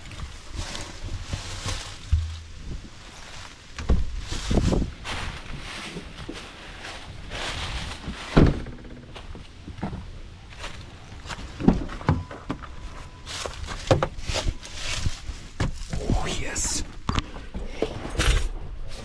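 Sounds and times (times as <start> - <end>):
rustling: 0.0 - 8.4, 12.7 - 19.0.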